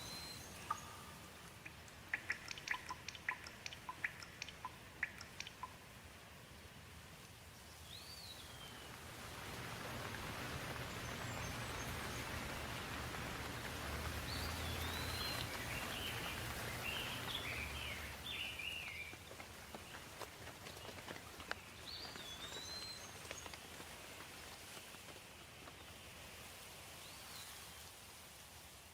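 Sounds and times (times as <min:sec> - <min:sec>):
steady rain falling: 0:00.0 - 0:28.9.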